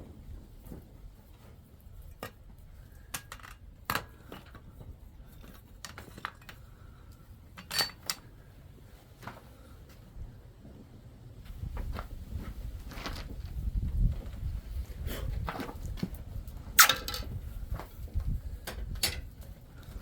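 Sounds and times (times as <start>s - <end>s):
light metal taps and clinks: 18.6s - 19.6s.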